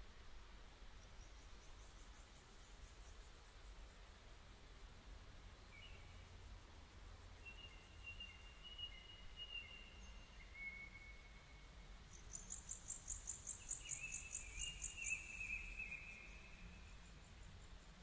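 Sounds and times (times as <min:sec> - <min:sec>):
bird high chirps: 0:12.3 - 0:16.6.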